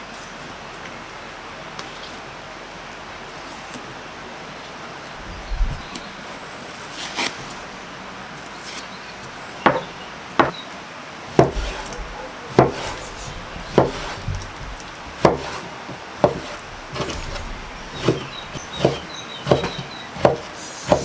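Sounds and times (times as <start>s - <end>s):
chopping blows on wood: 11.3s - 21.0s.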